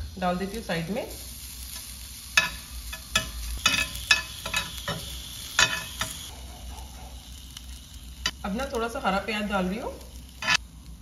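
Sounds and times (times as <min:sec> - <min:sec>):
food sizzling in a pan: 0:00.0 - 0:11.0
metal spoon scraping a pan: 0:01.7 - 0:06.3, 0:10.4 - 0:10.6.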